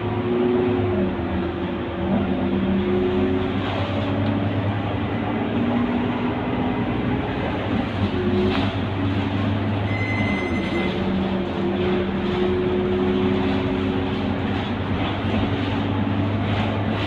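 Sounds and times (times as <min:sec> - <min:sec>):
bus engine drone: 0:00.0 - 0:17.0
brief high tone: 0:09.8 - 0:11.2.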